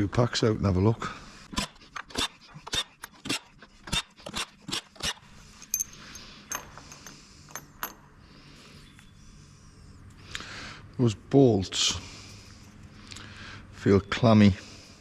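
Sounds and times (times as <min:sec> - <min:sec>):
metal tools and bolts clinking: 0:05.0 - 0:08.1.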